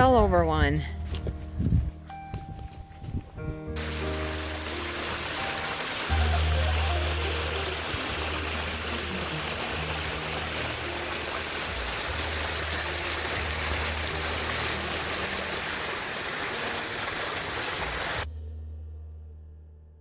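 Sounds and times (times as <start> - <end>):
stream water rushing: 3.8 - 18.3.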